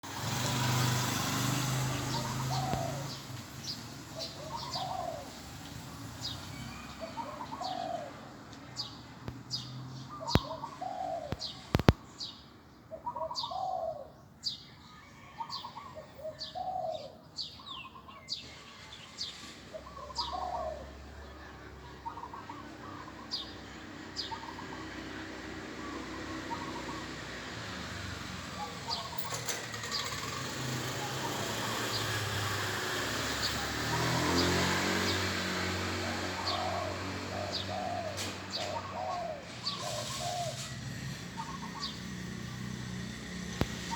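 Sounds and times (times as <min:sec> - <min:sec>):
dove cooing: 0:01.4 - 0:05.6, 0:06.8 - 0:08.3, 0:10.1 - 0:12.0, 0:13.0 - 0:14.1, 0:15.8 - 0:17.2, 0:19.9 - 0:21.0, 0:33.4 - 0:42.3
sharp clicks: 0:11.3 - 0:12.0.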